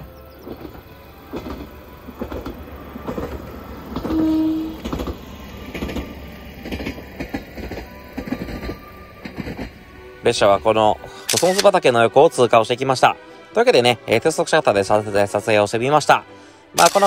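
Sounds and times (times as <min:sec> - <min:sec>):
railcar wheels clacking: 0:00.0 - 0:11.8
train horn blast: 0:03.9 - 0:05.9.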